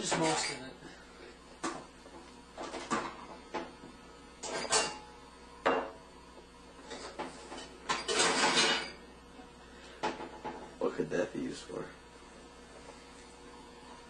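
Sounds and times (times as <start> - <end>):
dishes clinking: 0.0 - 0.7, 4.4 - 6.0, 6.8 - 9.0.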